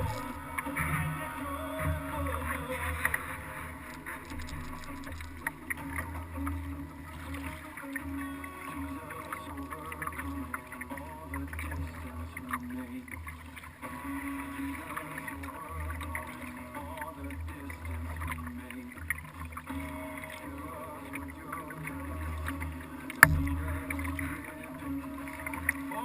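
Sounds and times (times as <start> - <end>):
water lapping against kayak hull: 0.0 - 26.0
small knocks: 23.2 - 23.8.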